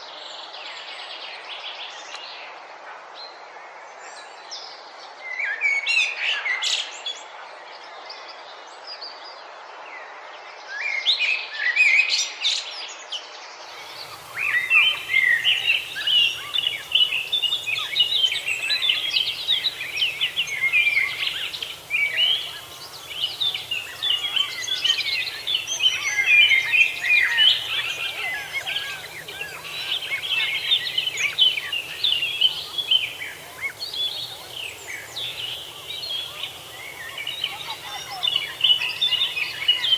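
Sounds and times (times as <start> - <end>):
songbirds singing: 13.7 - 39.9.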